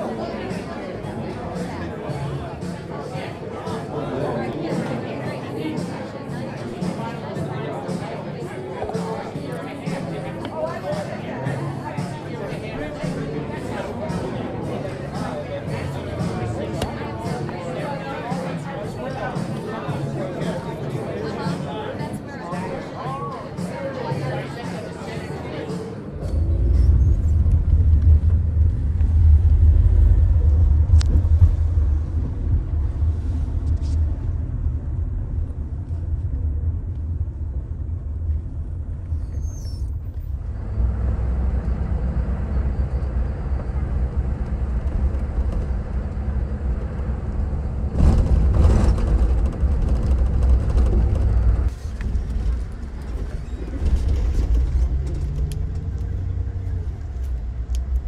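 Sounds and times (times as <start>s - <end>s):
rumble of motor traffic: 26.0s - 58.0s.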